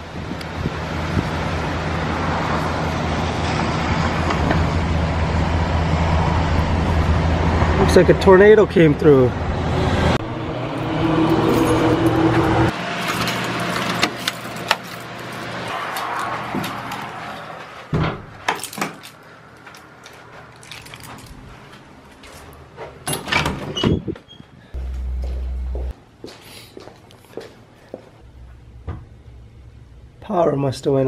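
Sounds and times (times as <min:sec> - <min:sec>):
car engine running: 0:24.8 - 0:25.9.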